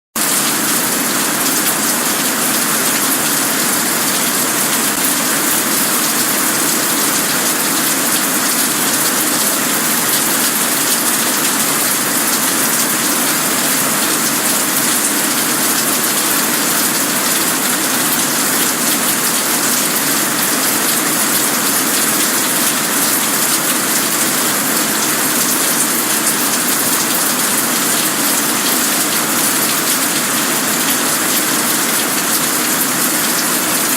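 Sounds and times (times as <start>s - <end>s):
steady rain falling: 0.2s - 33.9s.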